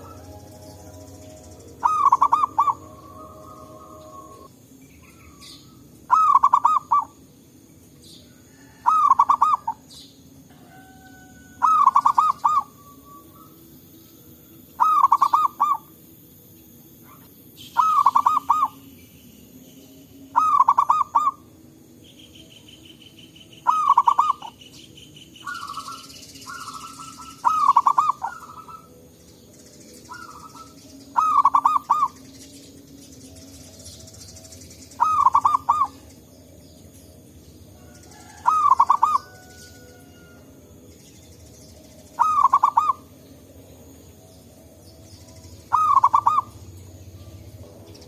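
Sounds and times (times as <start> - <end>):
doves cooing: 0.0 - 7.3, 8.2 - 13.8, 14.7 - 16.0, 17.0 - 18.9, 20.3 - 21.6, 23.6 - 24.7, 25.4 - 29.1, 30.0 - 32.6, 33.2 - 36.6, 37.6 - 40.8, 41.9 - 44.0, 44.8 - 48.0.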